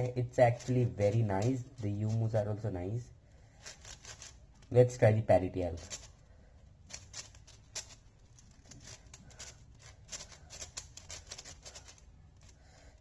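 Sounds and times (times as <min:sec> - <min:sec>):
plastic puzzle cube clicking: 0:03.6 - 0:04.7, 0:05.8 - 0:06.2, 0:06.8 - 0:13.0.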